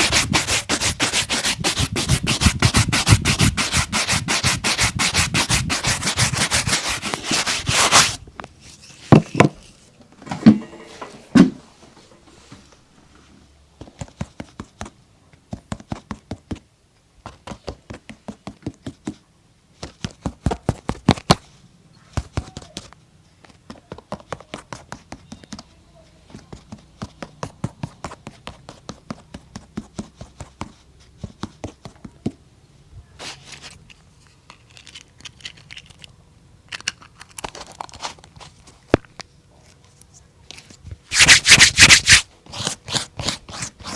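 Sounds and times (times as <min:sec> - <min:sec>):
shoe-shine strokes on leather boot: 0:41.1 - 0:42.3.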